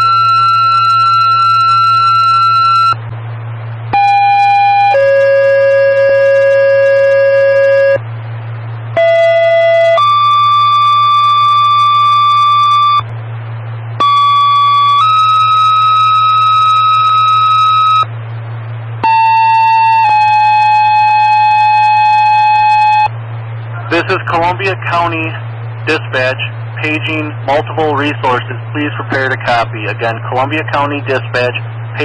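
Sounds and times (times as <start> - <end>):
two-tone pager tones: 0.0 - 3.0, 4.0 - 8.0, 9.0 - 13.0, 14.0 - 18.1, 19.0 - 23.1
radio hiss and hum: 0.0 - 32.0.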